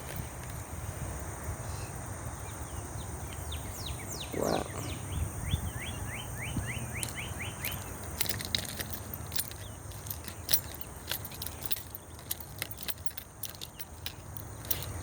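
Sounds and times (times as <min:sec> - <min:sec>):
bird chirping: 0:01.7 - 0:08.2.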